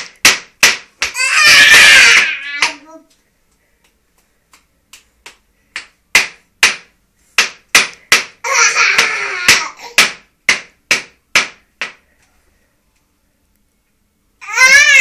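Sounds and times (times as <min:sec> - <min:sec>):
sharp knocks: 0:00.0 - 0:01.2, 0:05.8 - 0:12.0.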